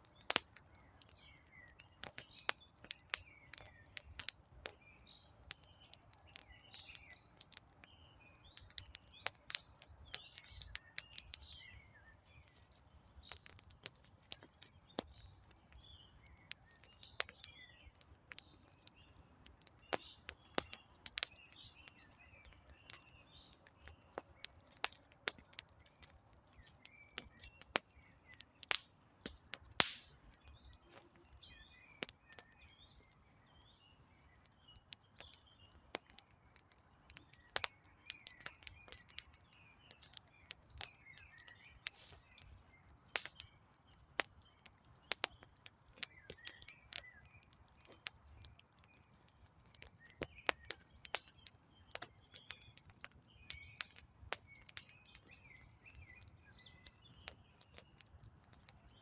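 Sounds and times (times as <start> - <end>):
small birds chirping: 0.0 - 59.0
wood fire crackling and popping: 0.0 - 59.0
hiss of flame: 41.9 - 42.3.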